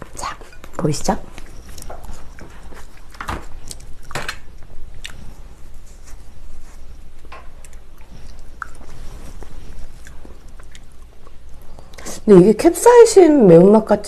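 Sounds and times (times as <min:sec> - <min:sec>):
close chewing: 0:00.0 - 0:12.0
wet mouth clicks: 0:07.6 - 0:09.0.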